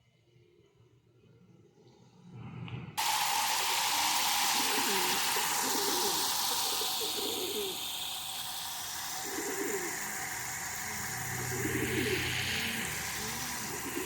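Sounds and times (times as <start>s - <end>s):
steady low hum: 3.0s - 14.0s
pigeons cooing: 4.5s - 7.8s, 9.1s - 10.6s, 11.2s - 14.0s.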